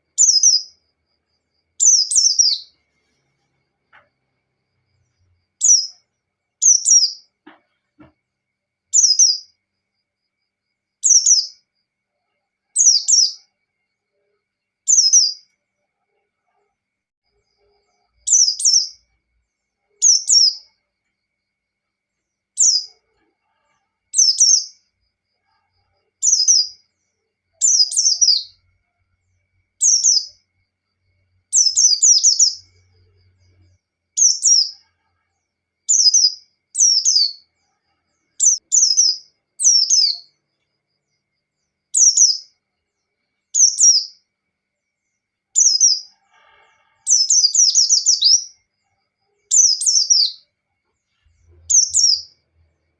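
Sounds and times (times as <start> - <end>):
bird singing high phrases: 0.0 - 0.8, 1.8 - 2.8, 5.5 - 7.3, 8.9 - 9.6, 11.0 - 11.7, 12.8 - 13.5, 14.8 - 15.5, 18.2 - 19.1, 19.9 - 20.8, 22.6 - 23.0, 24.1 - 24.9, 26.2 - 26.9, 27.6 - 28.6, 29.8 - 30.4, 31.5 - 32.9, 34.2 - 34.8, 35.9 - 37.5, 38.3 - 40.4, 42.0 - 42.6, 43.6 - 44.2, 45.6 - 46.1, 47.1 - 48.7, 49.5 - 50.4, 51.4 - 52.5.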